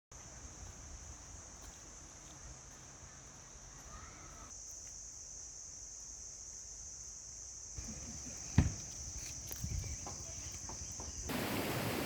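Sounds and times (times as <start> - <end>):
insects droning: 0.2 - 12.0.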